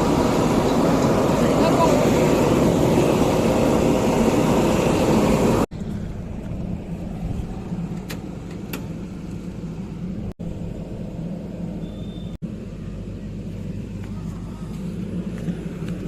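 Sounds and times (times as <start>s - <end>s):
diesel machinery engine rumble: 0.0s - 16.0s
high beep: 11.8s - 12.4s.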